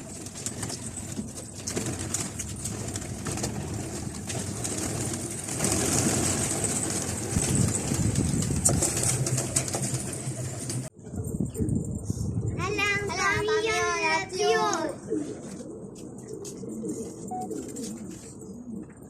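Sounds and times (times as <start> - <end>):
pigeons cooing: 14.4 - 19.0.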